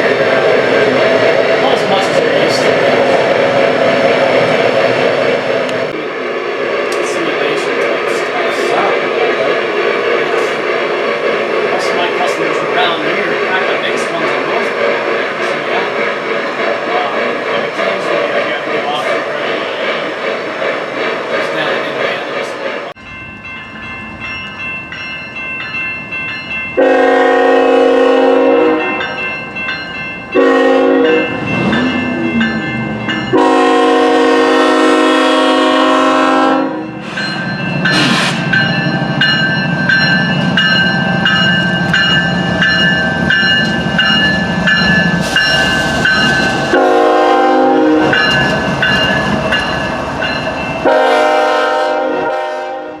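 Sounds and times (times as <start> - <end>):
model train signal horn blasts: 26.8 - 28.9, 30.4 - 31.3, 33.3 - 36.9, 46.8 - 48.2, 50.8 - 53.0.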